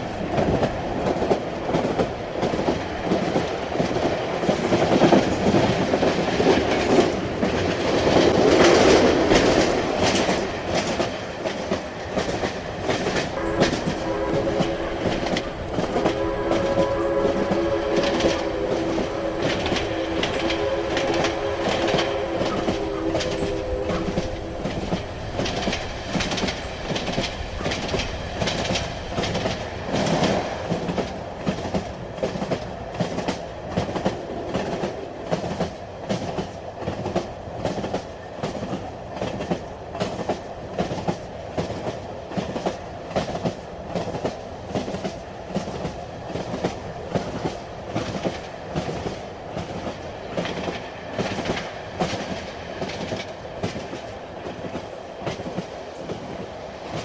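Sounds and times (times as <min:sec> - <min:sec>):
train rumbling: 0:00.0 - 0:57.0
wheels clacking over rail joints: 0:04.9 - 0:31.8.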